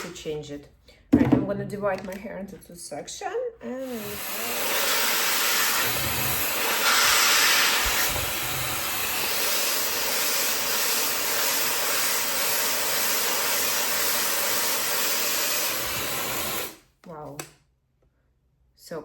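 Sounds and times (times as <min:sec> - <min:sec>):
hair dryer blowing: 0:03.8 - 0:16.8.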